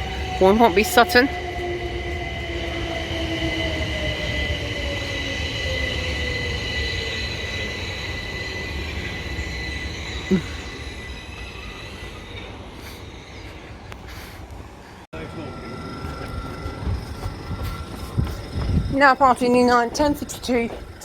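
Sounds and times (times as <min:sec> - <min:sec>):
high squeal: 0:00.0 - 0:13.8, 0:15.2 - 0:19.0
train rumble: 0:00.0 - 0:21.0
electric train motor whine: 0:15.2 - 0:19.3.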